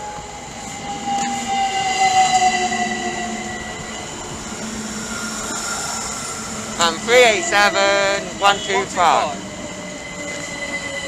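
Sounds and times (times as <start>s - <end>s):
electric train motor whine: 0.0s - 8.4s.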